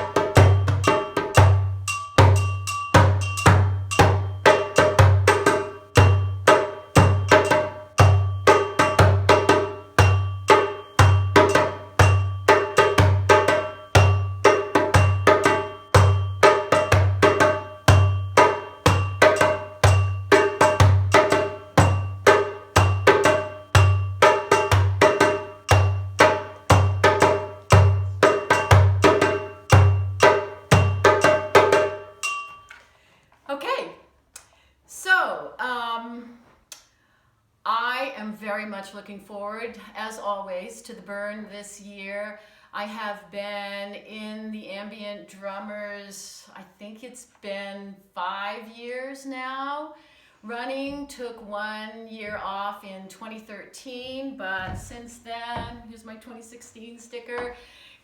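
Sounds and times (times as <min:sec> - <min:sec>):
hand drum rhythm: 0:00.0 - 0:32.7.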